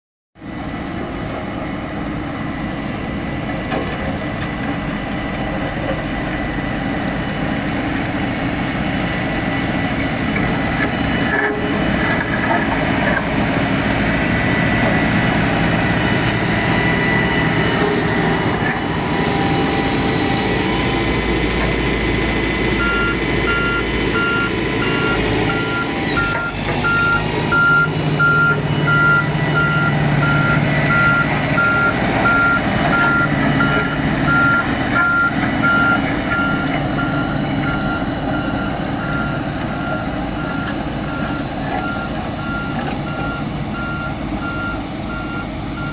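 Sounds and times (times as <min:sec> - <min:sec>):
bulldozer diesel engine: 0:00.4 - 0:45.9
reversing alarm beeping: 0:14.3 - 0:45.9.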